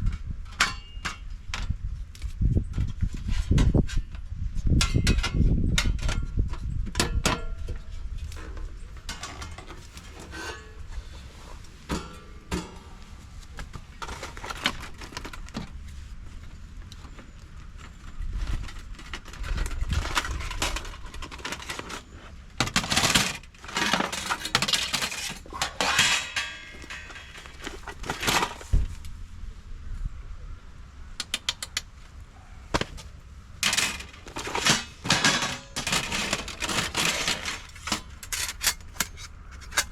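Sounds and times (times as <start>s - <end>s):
rustling: 8.1s - 29.1s.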